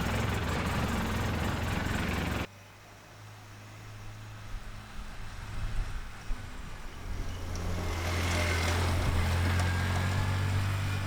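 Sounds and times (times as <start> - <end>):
utility vehicle engine running: 0.0 - 2.5, 7.0 - 11.0.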